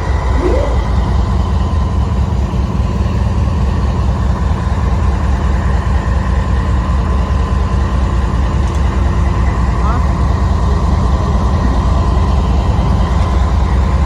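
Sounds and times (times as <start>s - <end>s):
train low rumble: 0.0s - 14.0s
faint high hum: 0.2s - 1.3s.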